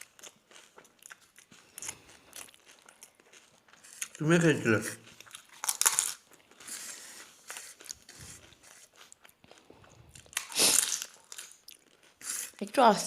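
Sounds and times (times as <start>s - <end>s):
close-up chewing and biting: 0.0s - 12.7s
crunchy bite: 5.1s - 6.3s, 10.1s - 12.6s.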